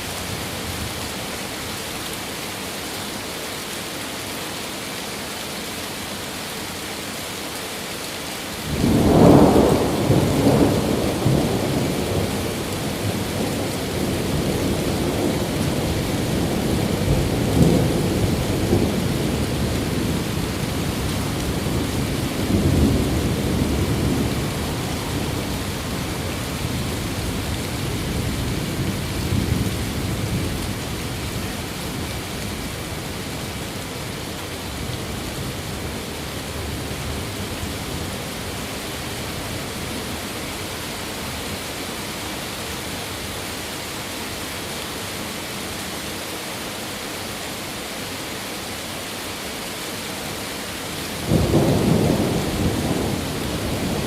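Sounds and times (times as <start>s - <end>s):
steady rain falling: 0.0s - 54.0s
thunder rumbling: 8.7s - 34.2s, 51.2s - 54.0s.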